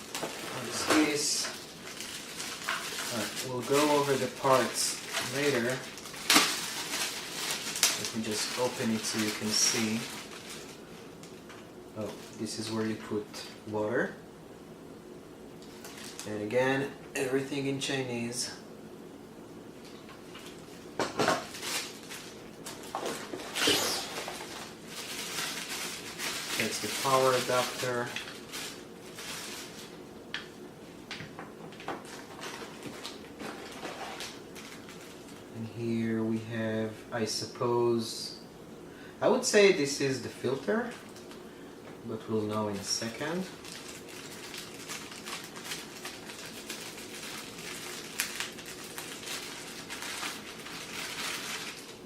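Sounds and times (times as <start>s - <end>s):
packaging rustling: 0.0s - 12.7s, 15.6s - 16.3s, 21.4s - 30.0s, 31.6s - 35.5s, 43.0s - 52.0s.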